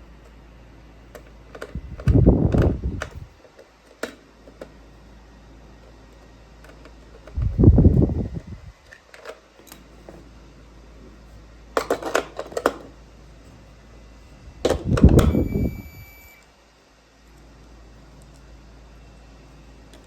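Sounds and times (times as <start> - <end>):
faint high steady tone: 15.2 - 16.5.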